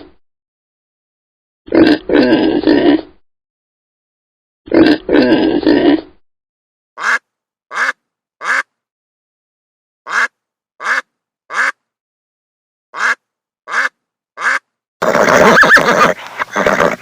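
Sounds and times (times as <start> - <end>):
horse neighing: 15.0 - 17.0.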